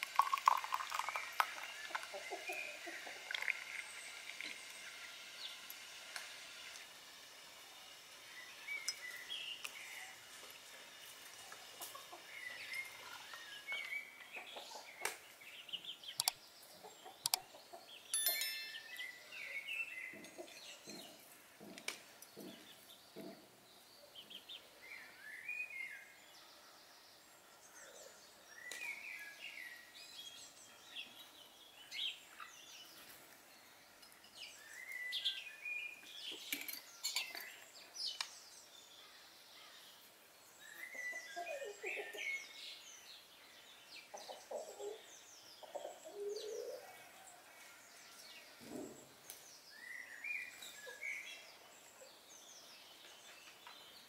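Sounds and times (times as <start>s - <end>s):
small birds chirping: 0.0s - 54.0s
sharp clicks: 16.1s - 16.4s, 17.2s - 17.4s.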